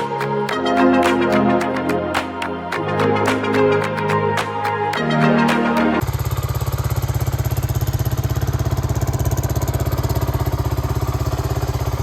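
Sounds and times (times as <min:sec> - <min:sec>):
motorcycle engine idling: 0:06.0 - 0:12.0.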